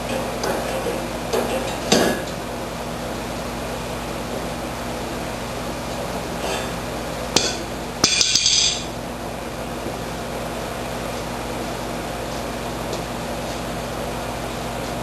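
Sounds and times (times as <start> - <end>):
steady hum: 0.0 - 15.0
hammer striking metal: 7.4 - 8.9.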